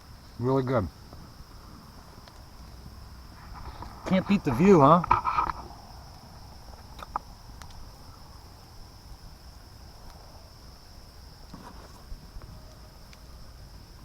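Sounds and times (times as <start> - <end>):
insect chorus droning: 0.0 - 14.0
faint ticks: 2.2 - 2.8, 5.0 - 7.8.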